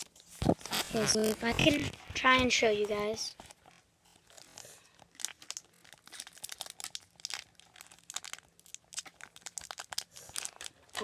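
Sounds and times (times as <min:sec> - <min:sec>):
foil wrapper crinkling: 0:03.4 - 0:11.0.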